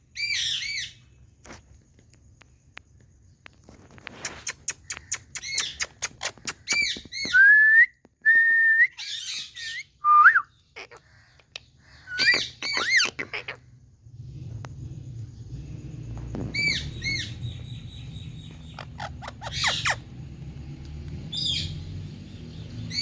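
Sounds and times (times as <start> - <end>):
parrot chirping and clicking: 3.5 - 7.2, 11.3 - 13.5, 18.4 - 21.8.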